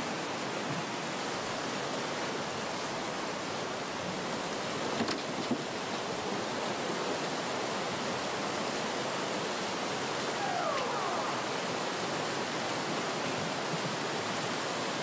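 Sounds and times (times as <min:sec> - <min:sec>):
faint falling tones: 0:10.3 - 0:12.3
helicopter roar: 0:10.4 - 0:11.9.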